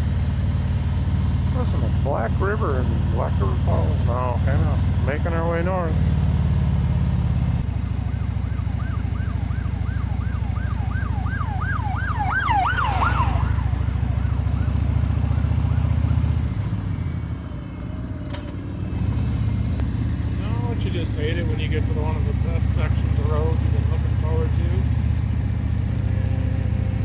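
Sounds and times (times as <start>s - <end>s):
motorcycle engine cruising: 0.0s - 27.0s
emergency vehicle siren: 5.9s - 27.0s.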